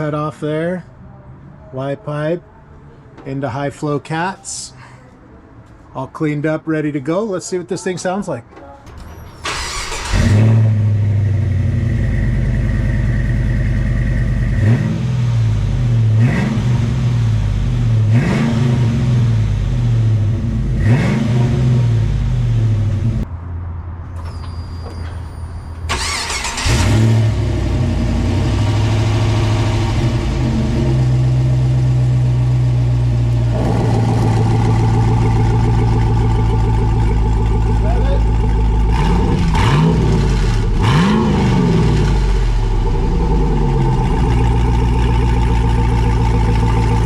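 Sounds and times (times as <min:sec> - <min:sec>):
car engine revving and idling: 0:09.4 - 0:23.3, 0:25.9 - 0:47.0.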